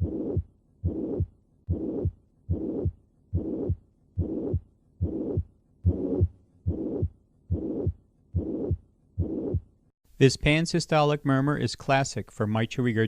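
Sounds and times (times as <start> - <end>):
heartbeat through stethoscope: 0.0 - 9.7
whooshing heart murmur: 0.0 - 9.7.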